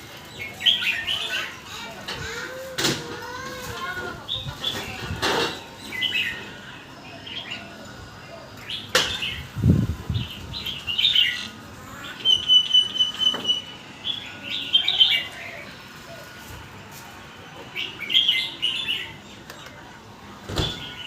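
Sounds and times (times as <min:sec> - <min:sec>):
bird singing chirpy phrases: 0:08.4 - 0:15.7
bird trill: 0:10.6 - 0:15.5.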